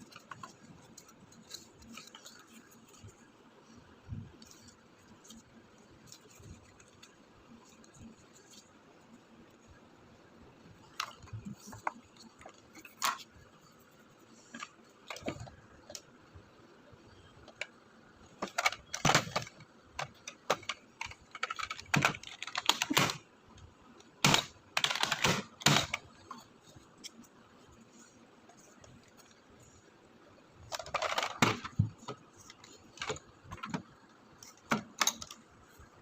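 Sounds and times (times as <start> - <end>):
plastic toy clicks and rattles: 0.0 - 3.2, 10.8 - 13.3, 17.4 - 23.3, 24.0 - 27.3, 30.6 - 35.5.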